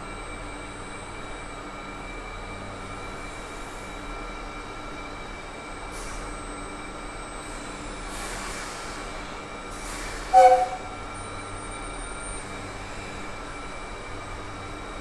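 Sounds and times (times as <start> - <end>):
train running with hum and whine: 0.0 - 15.0
train horn blast: 10.3 - 11.4.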